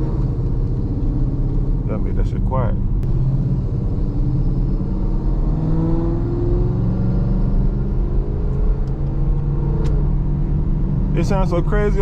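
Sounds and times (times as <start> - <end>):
muted car engine rumble: 0.0 - 12.0.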